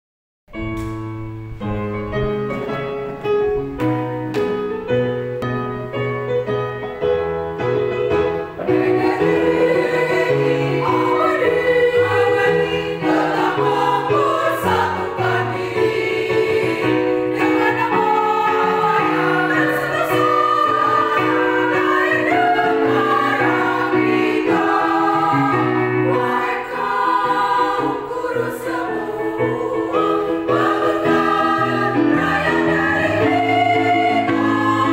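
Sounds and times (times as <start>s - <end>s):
quiet accompanied music: 0.5s - 34.9s
choir singing: 8.0s - 34.9s.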